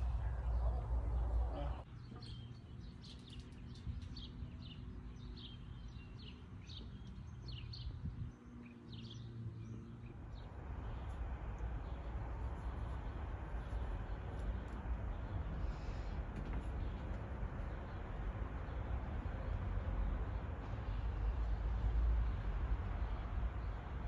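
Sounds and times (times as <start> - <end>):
steady outdoor rushing noise: 0.0 - 1.9, 10.2 - 24.0
low steady hum: 0.0 - 2.5
small birds chirping: 0.0 - 24.0.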